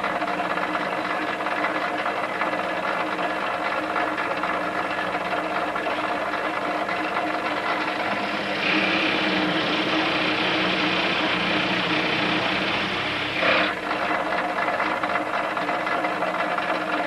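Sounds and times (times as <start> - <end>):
steady machine hum: 0.0 - 17.0
electric drill boring into wood: 7.1 - 14.4.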